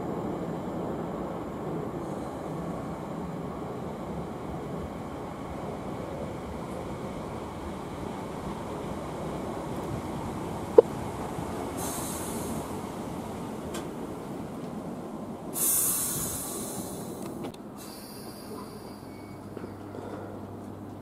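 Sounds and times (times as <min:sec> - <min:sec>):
train rumbling on track: 0:00.0 - 0:21.0
train hissing: 0:11.6 - 0:13.2, 0:15.5 - 0:19.2
sharp wheel squeal: 0:17.9 - 0:19.7.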